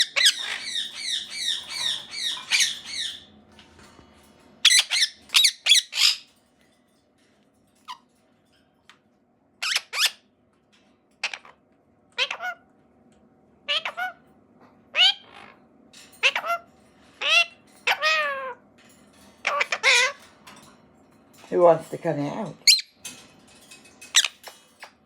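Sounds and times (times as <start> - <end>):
parakeet squawking: 0.0 - 3.3, 4.6 - 6.3, 9.6 - 10.2, 11.2 - 11.6, 12.2 - 12.7, 13.7 - 14.3, 14.9 - 15.6, 16.2 - 18.6, 19.4 - 20.3, 22.6 - 23.0, 24.1 - 25.0.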